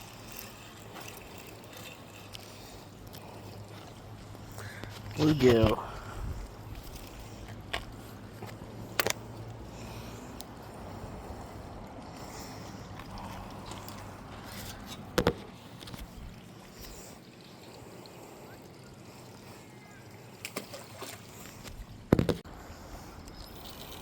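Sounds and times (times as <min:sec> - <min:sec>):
creek water running: 0:00.0 - 0:24.0
sharp knocks: 0:22.1 - 0:22.4.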